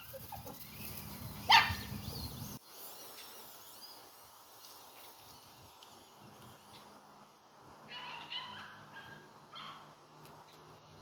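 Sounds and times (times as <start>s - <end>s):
dog barking: 1.5s - 1.9s, 7.9s - 9.9s.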